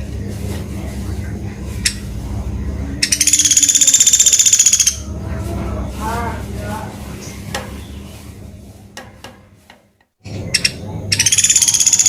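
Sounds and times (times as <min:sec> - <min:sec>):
low steady rumble: 0:00.0 - 0:11.5
woodpecker trill: 0:03.0 - 0:05.1, 0:10.3 - 0:12.0.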